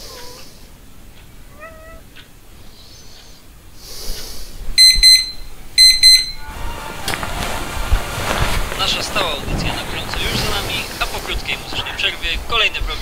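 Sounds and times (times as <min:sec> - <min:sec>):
cat meowing: 0:00.0 - 0:00.6, 0:01.4 - 0:02.2
alarm clock beeping: 0:04.8 - 0:06.5.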